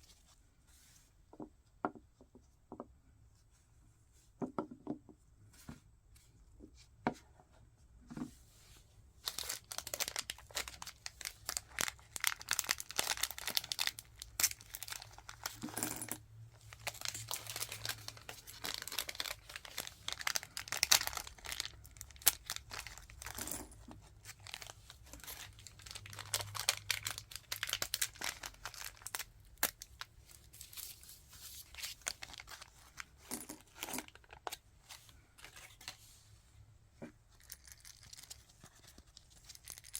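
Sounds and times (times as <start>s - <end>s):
packaging crinkling and tearing: 9.2s - 15.6s, 16.7s - 23.4s, 24.2s - 32.8s.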